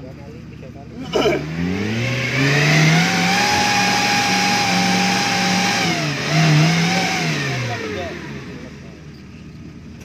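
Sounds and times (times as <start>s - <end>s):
engine revving hard: 1.0s - 8.9s.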